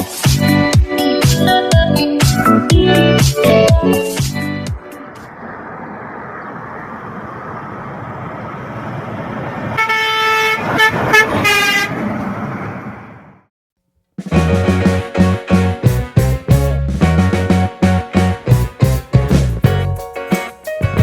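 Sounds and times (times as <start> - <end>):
road and engine noise: 4.5 - 13.5
truck horn blasts: 9.8 - 12.0.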